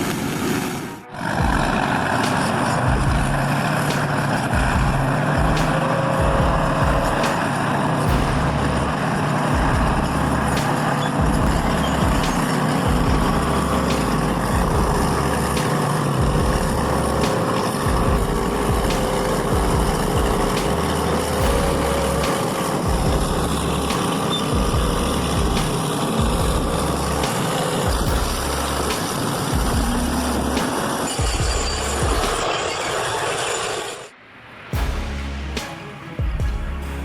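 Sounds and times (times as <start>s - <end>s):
heavy truck engine running: 0.0s - 33.9s.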